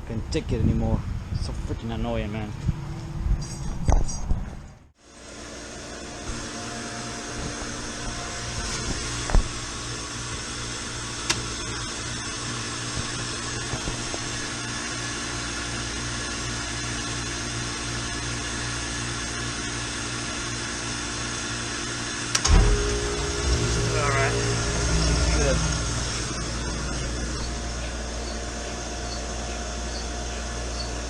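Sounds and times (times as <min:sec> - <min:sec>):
machinery humming: 0:22.3 - 0:30.2
loud knock: 0:22.4 - 0:28.0.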